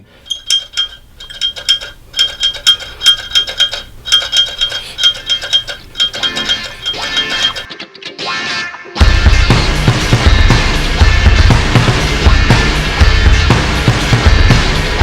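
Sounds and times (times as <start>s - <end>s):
rapid metallic clinking: 0.0s - 7.7s.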